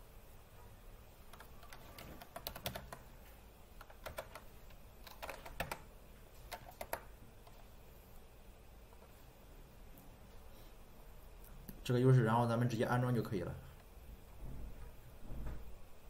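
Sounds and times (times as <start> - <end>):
keyboard typing: 1.3 - 3.2, 3.8 - 7.6.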